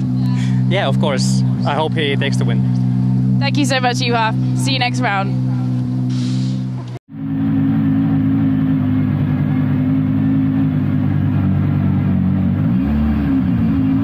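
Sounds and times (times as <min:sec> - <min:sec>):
car engine running low speed: 0:00.0 - 0:14.0.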